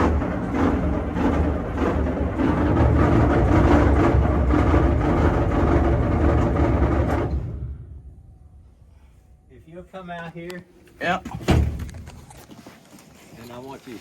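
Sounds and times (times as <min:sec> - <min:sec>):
diesel engine cranking by starter: 0:00.0 - 0:08.1.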